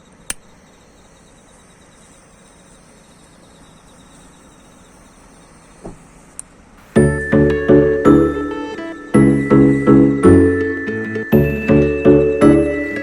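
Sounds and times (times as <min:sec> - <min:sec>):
insects chirping: 0:00.0 - 0:06.0
sharp click: 0:00.3 - 0:00.5.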